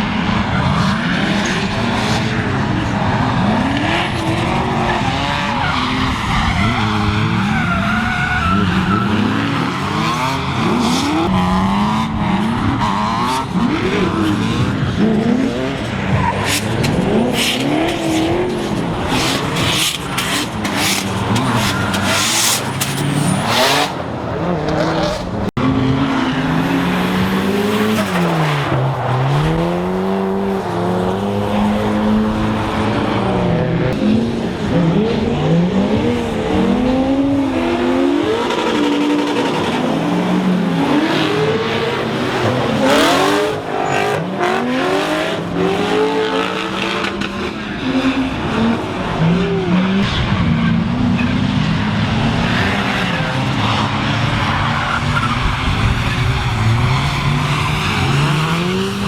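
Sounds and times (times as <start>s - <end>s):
car engines revving hard: 0.0s - 59.0s
tyres skidding on wet track: 15.3s - 24.1s, 37.4s - 59.0s.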